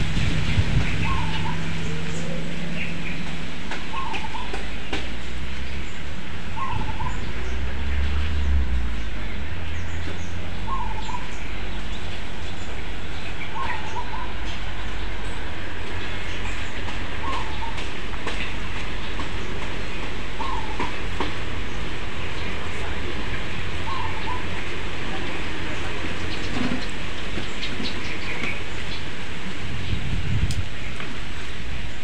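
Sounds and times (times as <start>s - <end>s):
low rumble: 0.0s - 17.7s
bird call: 0.9s - 5.1s.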